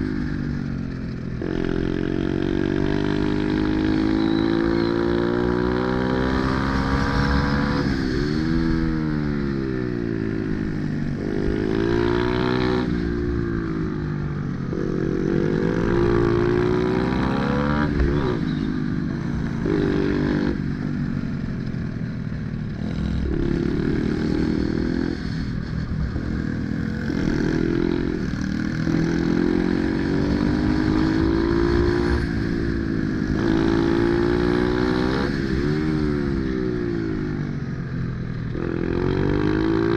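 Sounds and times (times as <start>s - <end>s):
pit bike engine revving: 22.7s - 36.4s.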